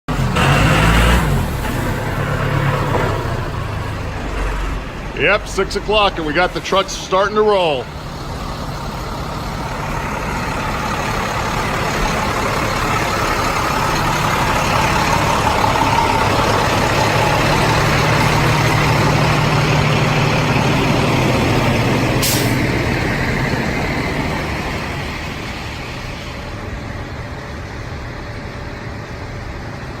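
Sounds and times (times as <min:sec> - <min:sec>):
heavy trucks rolling past: 0:00.1 - 0:30.0
air brake hiss: 0:22.2 - 0:22.7.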